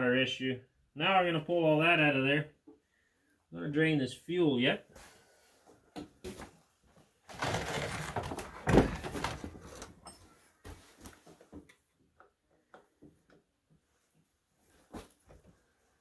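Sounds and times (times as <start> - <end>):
hands rustling and scraping: 13.8 - 16.0.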